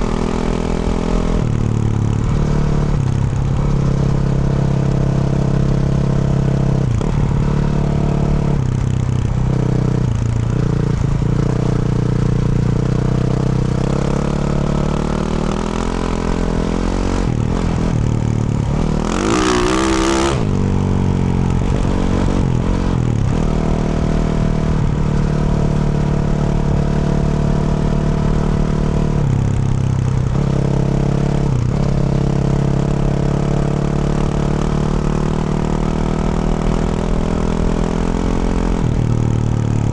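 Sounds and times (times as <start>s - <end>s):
dirt bike engine revving: 14.2s - 21.2s.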